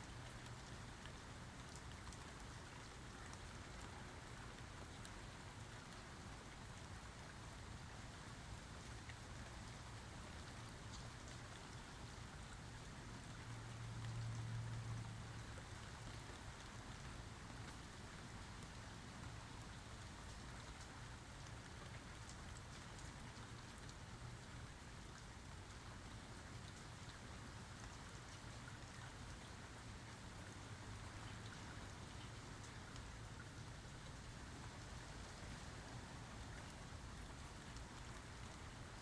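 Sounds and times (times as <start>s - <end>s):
rain pattering: 0.0s - 39.0s
drip ticks: 10.8s - 11.8s, 13.4s - 17.9s, 19.6s - 24.0s.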